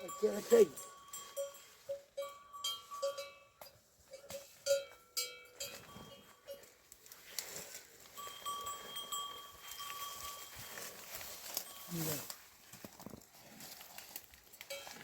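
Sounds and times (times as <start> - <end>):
livestock bells clanking: 0.0 - 6.9, 8.0 - 12.4, 14.6 - 15.0.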